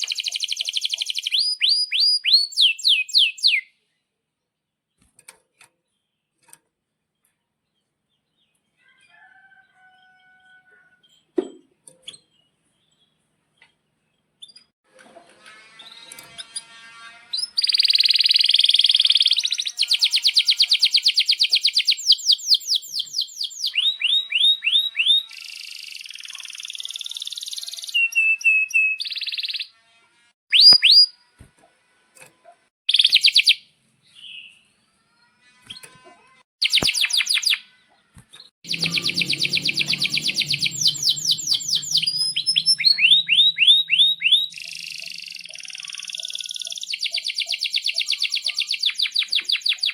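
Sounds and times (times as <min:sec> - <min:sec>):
canary singing trills: 0:00.0 - 0:03.7, 0:17.4 - 0:29.7, 0:32.9 - 0:33.6, 0:38.7 - 0:49.9.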